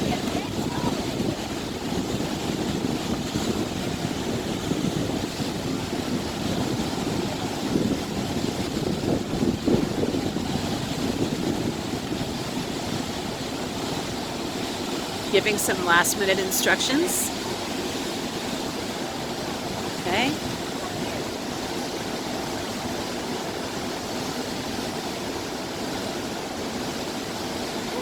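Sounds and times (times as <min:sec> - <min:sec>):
wind buffeting microphone: 0:00.0 - 0:16.0
water rushing: 0:00.0 - 0:28.0.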